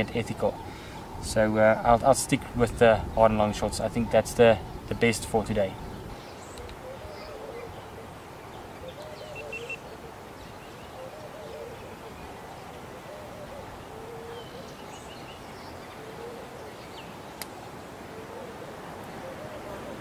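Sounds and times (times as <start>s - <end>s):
bird repeating low phrase: 0.0s - 20.0s
high bird chirps: 9.0s - 9.9s.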